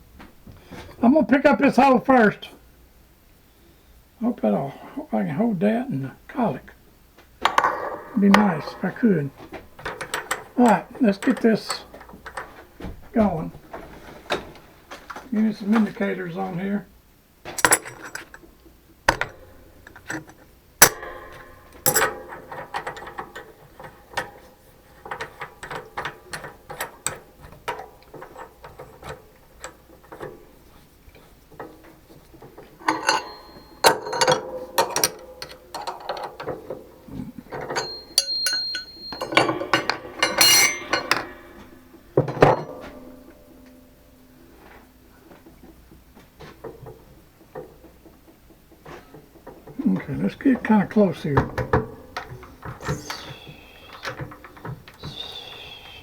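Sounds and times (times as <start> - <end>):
metal tools clinking and knocking: 7.4 - 16.0, 17.5 - 45.7, 48.8 - 55.3.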